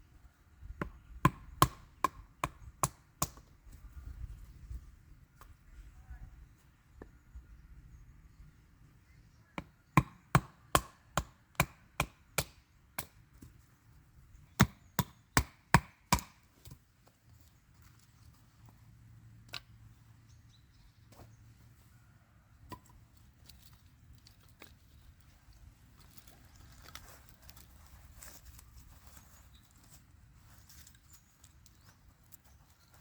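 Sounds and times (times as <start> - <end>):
blade chopping wood: 9.6 - 13.5, 14.6 - 16.8.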